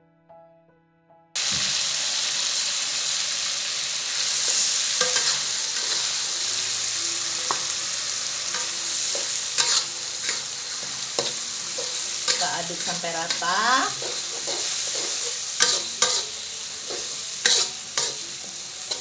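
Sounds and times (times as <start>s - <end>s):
paste sizzling in hot oil: 1.4s - 19.0s.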